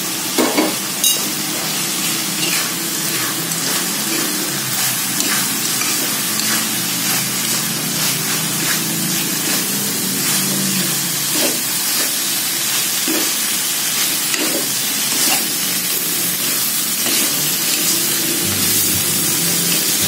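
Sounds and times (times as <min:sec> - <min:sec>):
sambal sizzling in wok: 0:00.0 - 0:20.0
metal spatula scraping pan: 0:02.0 - 0:12.2.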